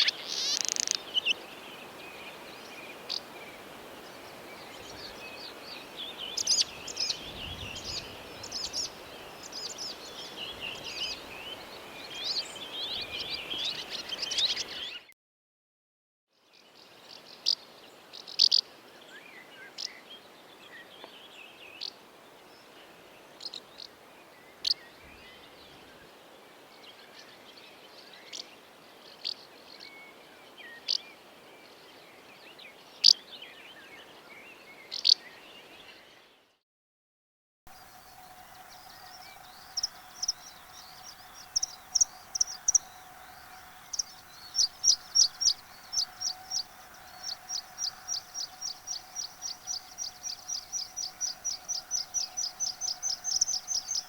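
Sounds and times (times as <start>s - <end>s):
sharp high bird calls: 37.7s - 54.0s
steady hum-like tone: 37.7s - 54.0s.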